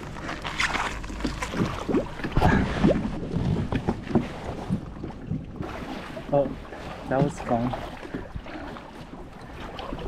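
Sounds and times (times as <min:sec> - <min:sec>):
wind on microphone: 0:01.5 - 0:05.9.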